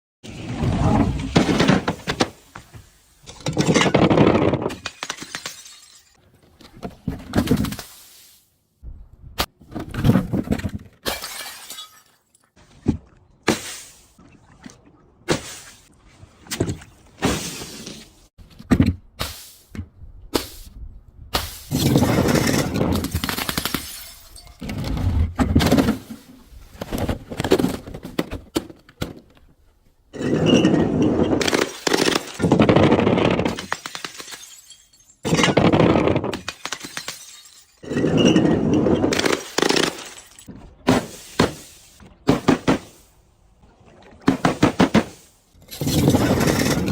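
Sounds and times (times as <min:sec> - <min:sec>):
glass crushing and shattering: 0:03.2 - 0:06.2, 0:11.0 - 0:12.5, 0:21.7 - 0:24.8, 0:30.2 - 0:40.5.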